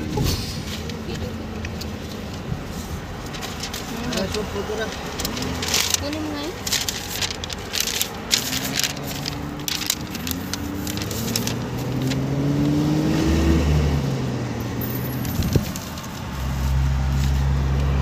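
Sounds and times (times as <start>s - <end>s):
crackling handling noises: 0.7s - 12.8s, 14.8s - 18.0s
car engine accelerating: 6.7s - 18.0s.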